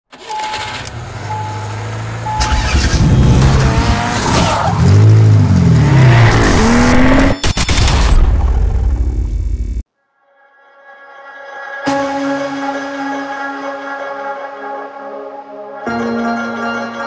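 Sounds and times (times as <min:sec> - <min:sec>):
race car engine revving: 0:00.5 - 0:07.4
short beeps: 0:02.3 - 0:02.8.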